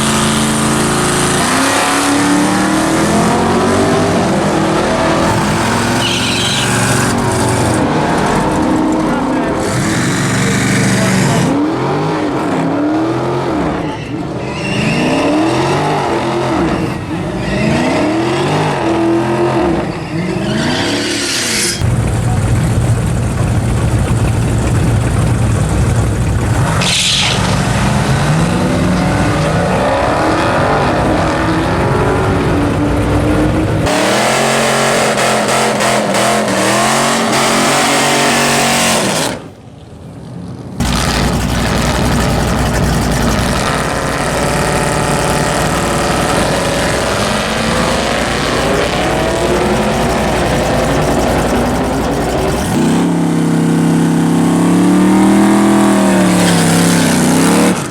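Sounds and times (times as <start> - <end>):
racing cars accelerating hard: 0.0 - 21.8, 26.6 - 39.5, 40.8 - 57.9
high screech: 5.1 - 11.5, 13.7 - 18.7, 19.6 - 21.8, 26.8 - 27.8, 40.8 - 53.1.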